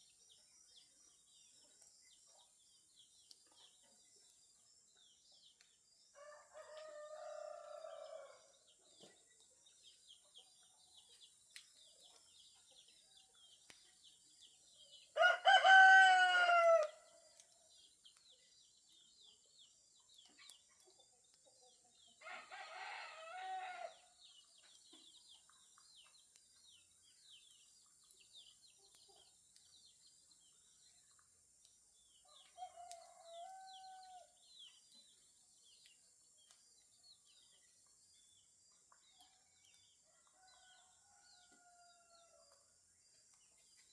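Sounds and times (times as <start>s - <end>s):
roosters crowing: 15.2s - 17.0s, 22.2s - 23.9s.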